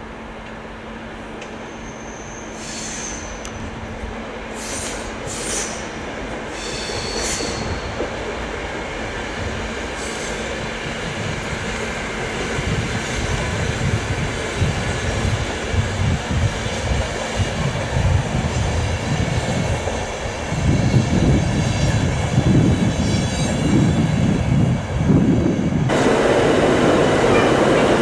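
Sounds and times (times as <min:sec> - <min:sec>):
passenger train rumbling past: 0:00.0 - 0:28.0.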